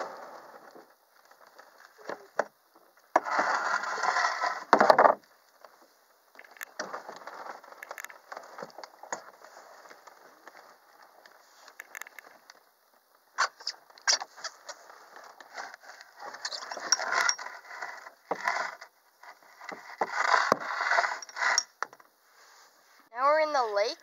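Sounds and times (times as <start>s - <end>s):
canoe gear clicks and knocks: 6.4s - 12.6s.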